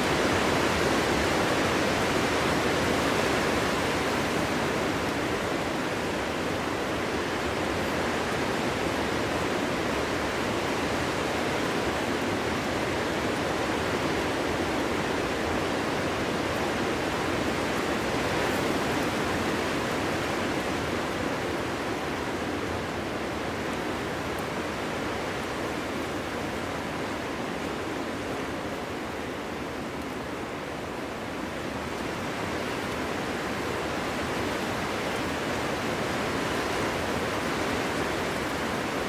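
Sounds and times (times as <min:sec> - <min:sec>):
wind blowing steadily: 0:00.0 - 0:39.0.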